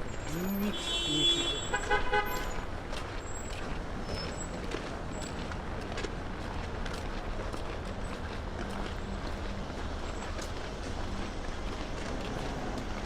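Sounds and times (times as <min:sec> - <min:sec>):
city traffic: 0:00.0 - 0:13.0
car horn toot: 0:00.3 - 0:02.6.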